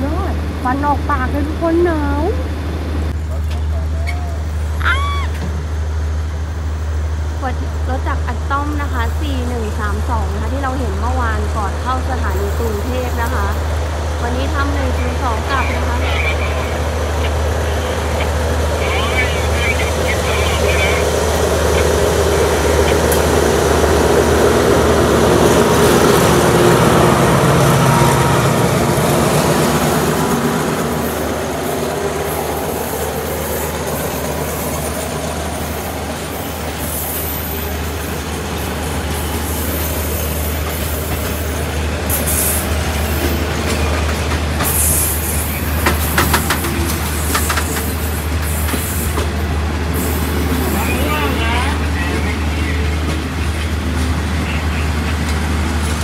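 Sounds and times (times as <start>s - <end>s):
train wheels rumbling on rails: 0.0s - 56.0s
sharp rail clacks: 45.7s - 49.4s.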